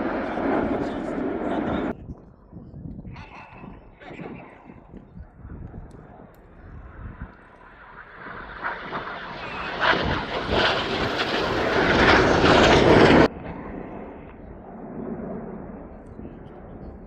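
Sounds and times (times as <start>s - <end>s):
jet aircraft passing: 0.0s - 2.0s, 6.6s - 17.0s.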